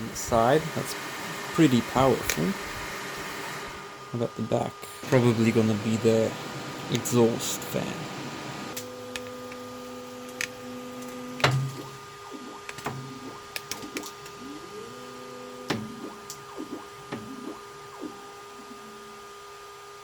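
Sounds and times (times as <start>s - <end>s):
fan hum: 0.0s - 20.0s
stepper motors whining: 5.0s - 20.0s.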